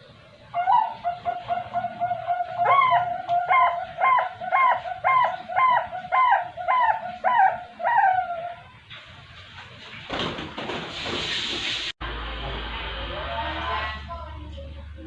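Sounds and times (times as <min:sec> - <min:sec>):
dove cooing: 0:00.5 - 0:08.7.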